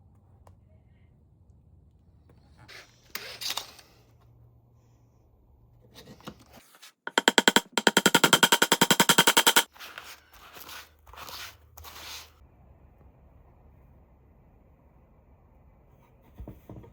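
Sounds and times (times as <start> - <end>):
rapid mechanical clicking rattle: 7.1 - 9.7.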